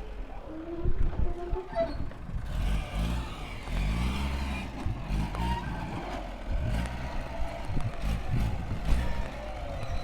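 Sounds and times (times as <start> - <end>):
vehicle engine revving: 2.3 - 10.0.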